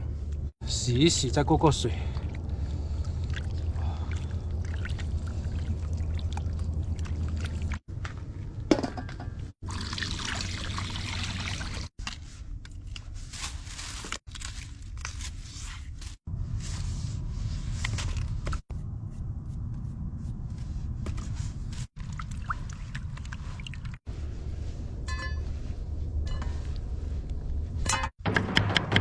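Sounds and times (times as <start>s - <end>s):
water pouring and sloshing: 1.2s - 18.6s, 21.1s - 24.7s.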